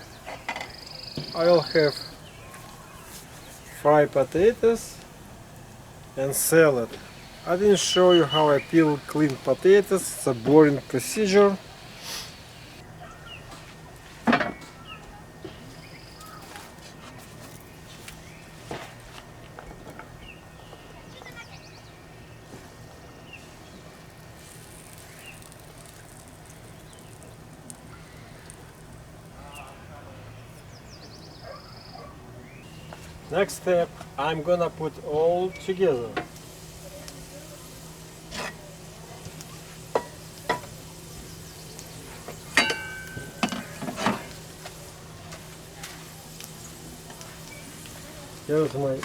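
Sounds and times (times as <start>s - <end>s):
outdoor background hiss and hum: 0.0s - 49.0s
food sizzling in a pan: 6.0s - 12.8s, 24.3s - 28.9s, 35.6s - 49.0s
utensil clinking against pan: 42.5s - 44.4s
ringing metal clang: 42.6s - 44.2s.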